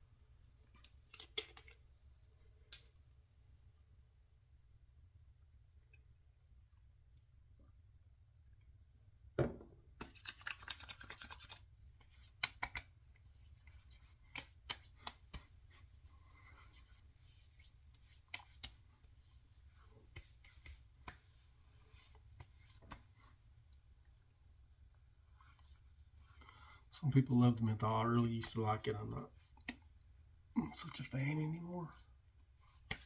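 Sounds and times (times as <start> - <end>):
knock: 9.4 - 9.8.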